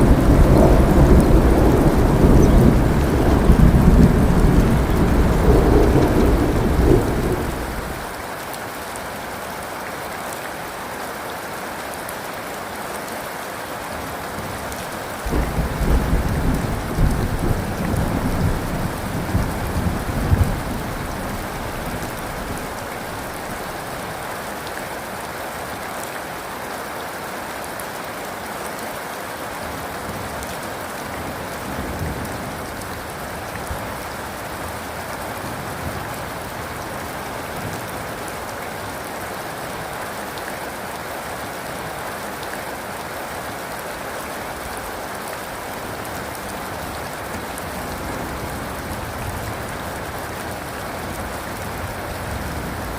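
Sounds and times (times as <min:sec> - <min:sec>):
low thunder rumble: 0:00.0 - 0:08.1, 0:14.6 - 0:24.1
heavy rain falling: 0:00.0 - 0:52.9.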